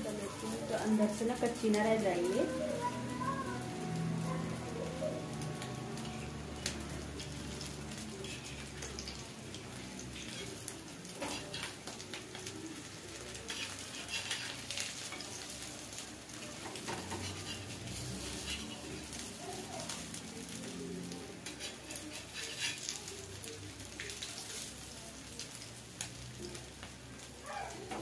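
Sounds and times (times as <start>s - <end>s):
food sizzling on a pan: 0.0s - 28.0s
metal spatula scraping a pan: 7.2s - 9.2s, 10.0s - 12.4s, 13.3s - 15.6s, 16.6s - 19.6s, 21.4s - 23.2s.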